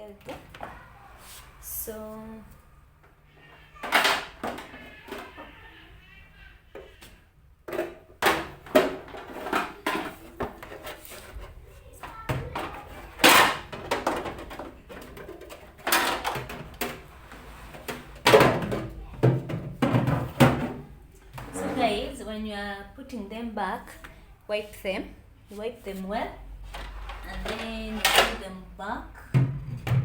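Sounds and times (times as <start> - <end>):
plastic fridge shelves clattering: 7.7 - 11.4, 12.3 - 22.0.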